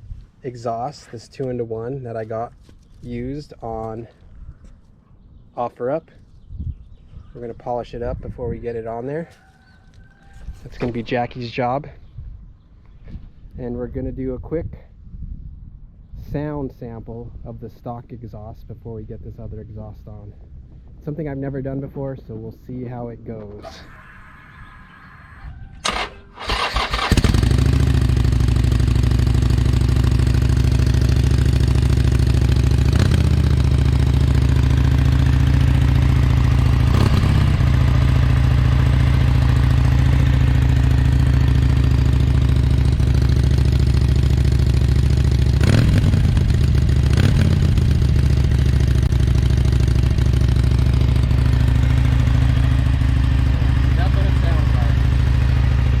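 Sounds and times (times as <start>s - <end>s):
motorcycle engine idling: 25.8s - 56.0s.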